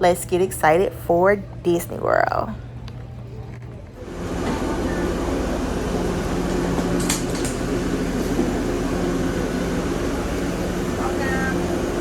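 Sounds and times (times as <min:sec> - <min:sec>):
air-handling machinery drone: 0:03.9 - 0:12.0.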